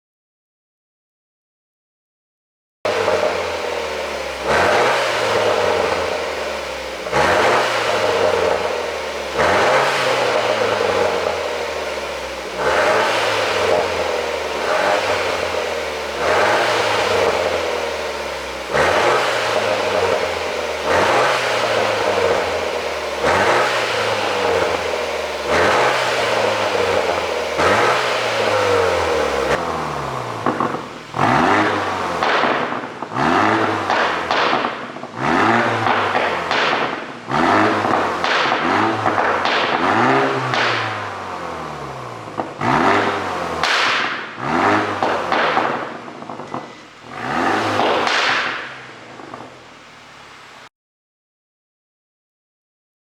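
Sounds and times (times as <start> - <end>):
car engine revving: 2.9 - 50.7
exhaust popping and crackling: 2.9 - 50.7.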